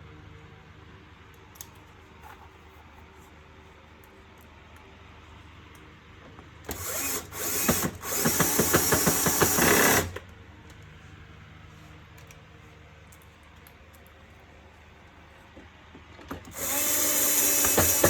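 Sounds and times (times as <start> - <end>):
power screwdriver driving screw: 6.7 - 10.2, 16.4 - 18.0.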